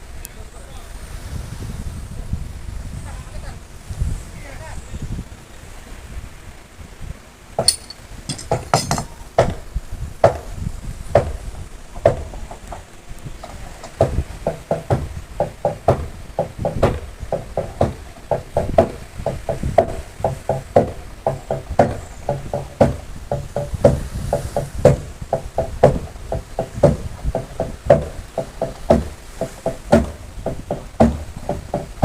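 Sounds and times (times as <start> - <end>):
hammer striking wooden planking: 7.6 - 9.6, 13.8 - 32.0.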